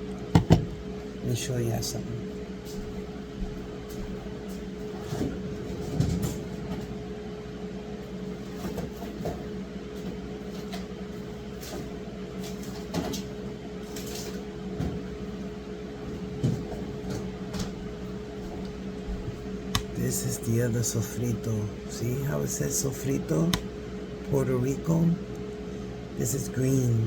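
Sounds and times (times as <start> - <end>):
motor hum: 0.0 - 7.1, 14.8 - 27.0.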